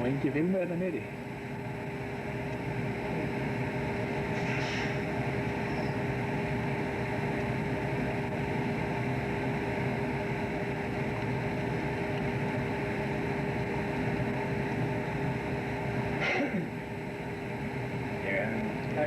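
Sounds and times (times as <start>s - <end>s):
boat engine droning: 0.0s - 19.0s
brief hiss: 4.3s - 5.0s.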